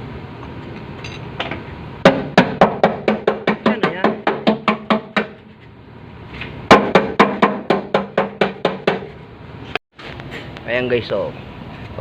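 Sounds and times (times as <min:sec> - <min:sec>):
hammer ringing on sheet metal: 0:02.1 - 0:05.4.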